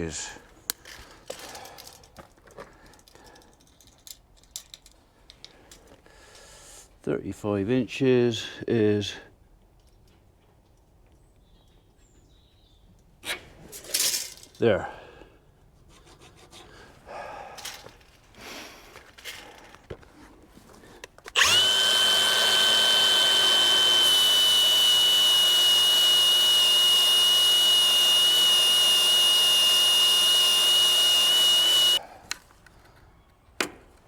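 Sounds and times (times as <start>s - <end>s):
disc cutter whining: 21.4s - 32.0s.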